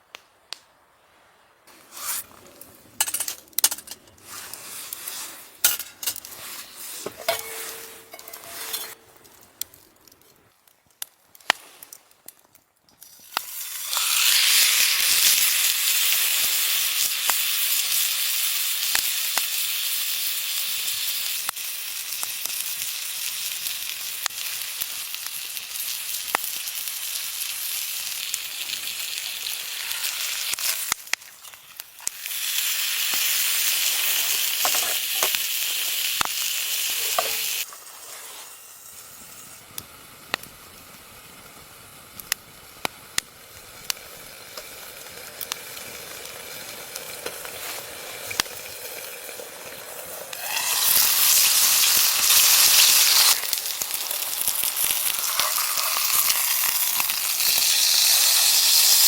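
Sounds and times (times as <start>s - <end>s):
food sizzling in a pan: 1.7s - 9.5s, 13.0s - 59.0s
cookware clicking and knocking: 7.1s - 9.0s, 37.0s - 37.5s.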